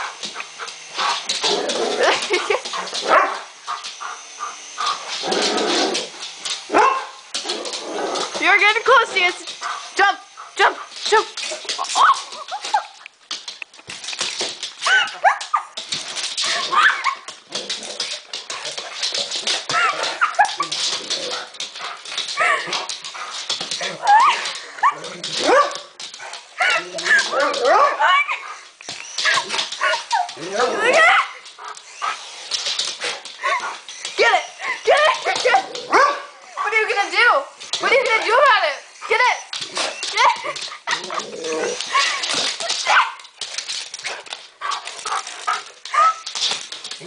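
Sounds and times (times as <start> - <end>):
dog barking and whimpering: 1.5 - 3.5, 6.7 - 7.2, 14.8 - 15.8, 16.5 - 17.3, 23.8 - 25.9, 26.6 - 31.4, 33.4 - 36.4, 39.1 - 43.3, 45.1 - 46.3
dog whining: 26.6 - 32.2, 39.0 - 42.9.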